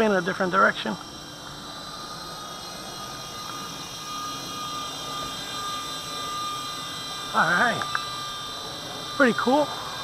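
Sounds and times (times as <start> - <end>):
toy helicopter motor whine: 0.0 - 10.0.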